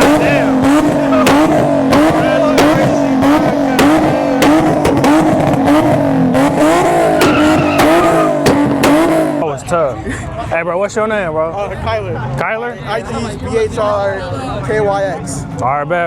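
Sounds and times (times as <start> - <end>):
tire squeal: 0.0 - 5.2, 6.6 - 9.2
car engine revving: 0.0 - 9.5.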